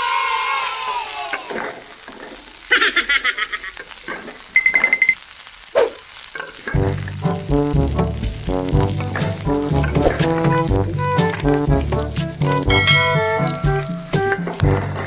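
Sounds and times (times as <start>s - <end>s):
prawns frying in oil: 0.1s - 15.0s
falling pitched tone: 9.9s - 14.6s.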